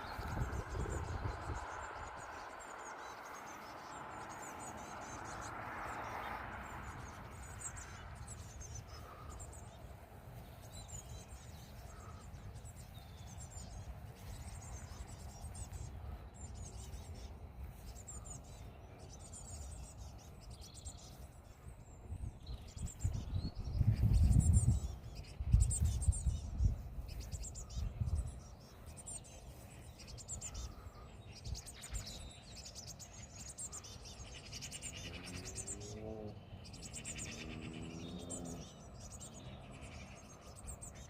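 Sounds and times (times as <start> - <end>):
low rumble with loud bursts: 0.0 - 3.2
small birds chirping: 0.0 - 41.0.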